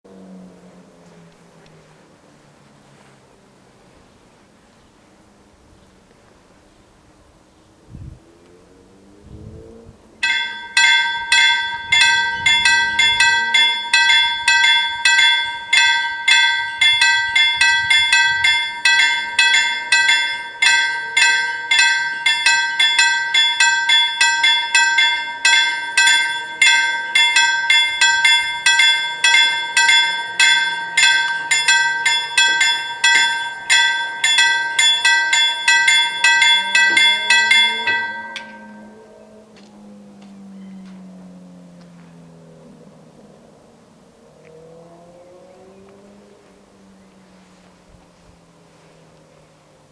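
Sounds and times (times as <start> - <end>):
level-crossing warning bells ringing: 10.0 - 49.9.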